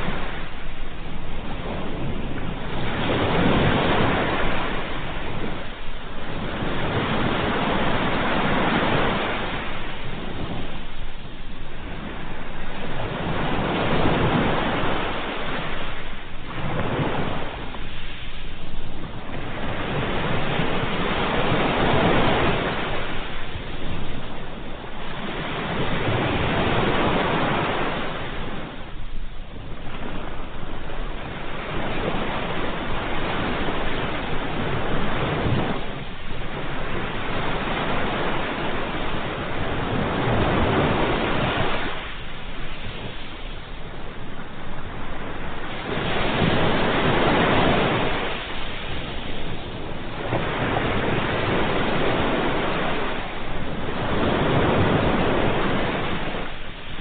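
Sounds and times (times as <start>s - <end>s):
ocean surf waves washing in: 0.0s - 57.0s.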